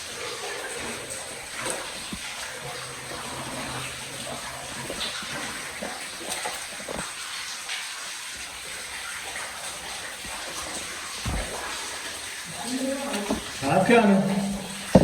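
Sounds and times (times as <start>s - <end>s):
water rushing in a cave: 0.0s - 15.0s
faint knocks: 11.2s - 15.0s.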